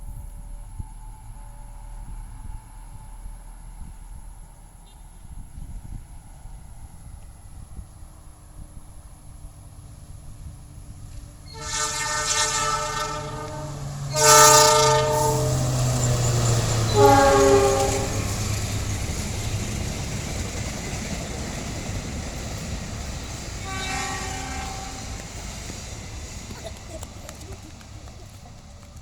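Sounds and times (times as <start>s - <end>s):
passing train rumble: 0.0s - 29.0s
train horn blasts: 11.5s - 19.0s, 23.6s - 25.5s.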